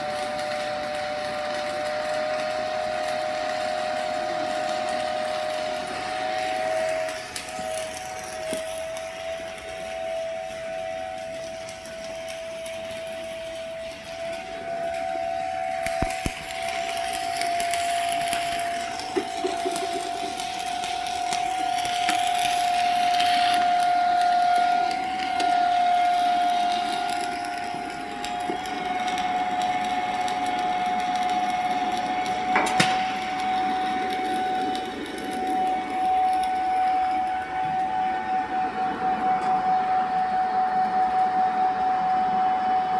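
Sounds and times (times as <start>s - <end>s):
steady high-pitched whine: 0.0s - 42.9s
welding arc crackling: 0.0s - 42.9s
sharp crack: 32.5s - 33.6s.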